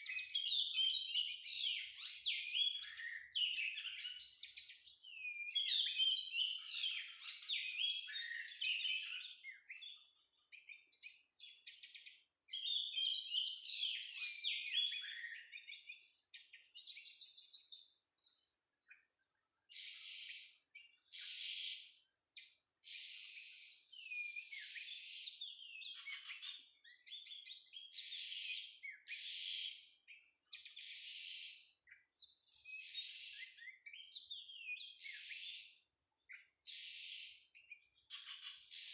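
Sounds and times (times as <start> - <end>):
bird whistled song: 0.0 - 38.9
harsh buzzy bird calls: 36.4 - 38.9.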